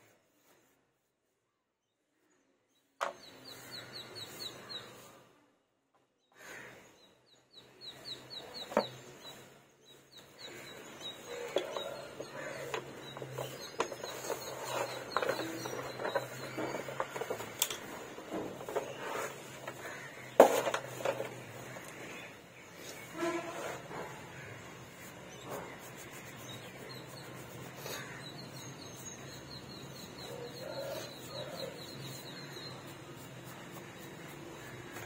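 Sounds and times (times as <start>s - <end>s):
bird chirping: 1.8s - 5.2s, 6.0s - 35.0s
rustling of rolled sheet: 12.3s - 22.1s.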